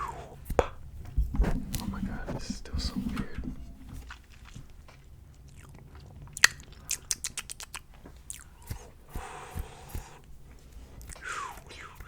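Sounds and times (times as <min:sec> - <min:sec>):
wet tongue clicks and pops: 0:04.1 - 0:08.9
breathy hiss: 0:08.5 - 0:12.0.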